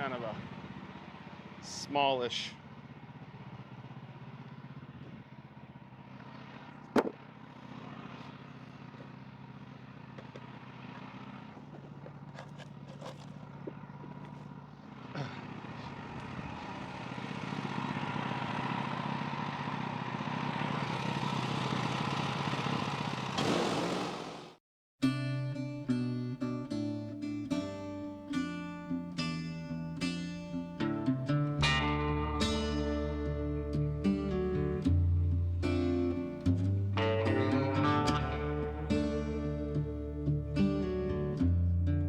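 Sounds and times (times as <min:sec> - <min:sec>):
sawmill engine running: 0:00.0 - 0:24.6
sharp knock: 0:07.0 - 0:07.2.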